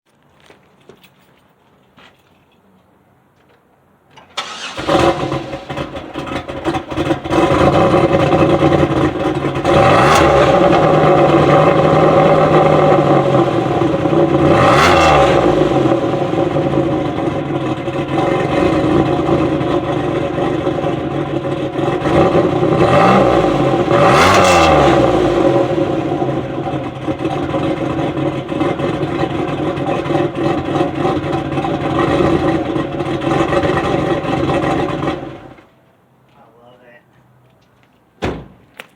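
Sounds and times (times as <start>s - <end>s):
car engine idling and revving: 4.2s - 35.8s.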